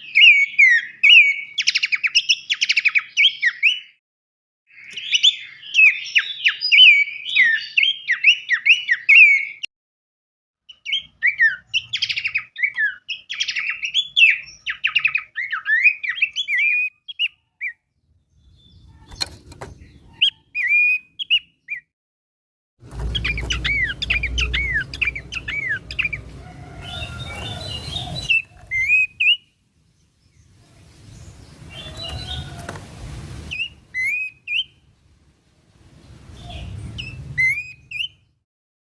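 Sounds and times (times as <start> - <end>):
songbirds chirping and whistling: 0.0 - 4.0, 4.7 - 9.7, 10.6 - 21.9, 22.8 - 35.2, 35.8 - 38.4
low background rumble: 22.8 - 28.7.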